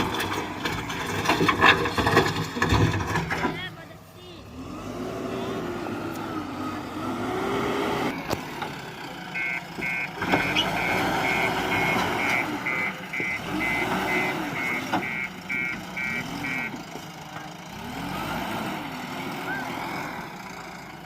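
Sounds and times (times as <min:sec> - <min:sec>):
diesel engine revving: 0:00.0 - 0:21.0
reversing alarm beeping: 0:09.3 - 0:16.8.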